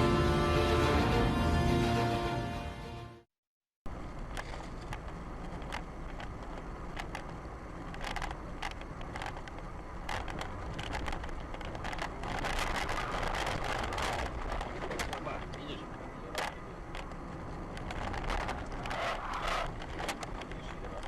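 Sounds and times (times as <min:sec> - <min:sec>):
car road and engine noise: 0:00.0 - 0:03.3, 0:03.9 - 0:21.0
sharp clicks and ticks: 0:04.2 - 0:21.0.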